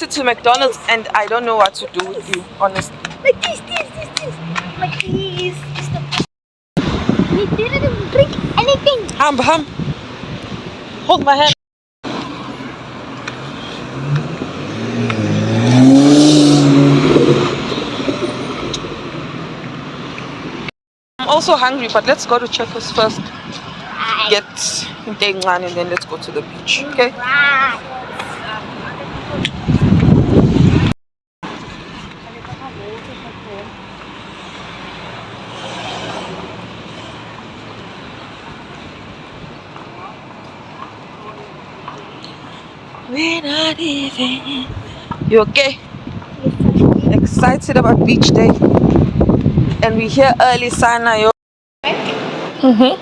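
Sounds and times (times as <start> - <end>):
traffic noise: 0.0 - 53.0
vehicle passing: 1.9 - 9.0, 12.1 - 20.7, 31.5 - 45.3
vehicle passing close by: 12.1 - 20.7, 34.1 - 39.3.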